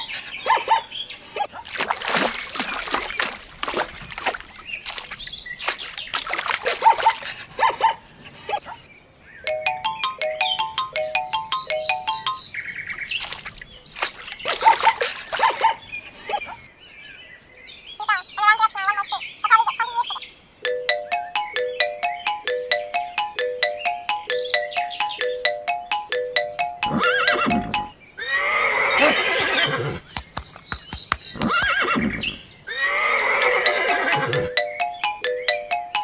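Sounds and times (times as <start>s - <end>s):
horse whinnies: 26.9s - 30.0s, 31.4s - 34.5s.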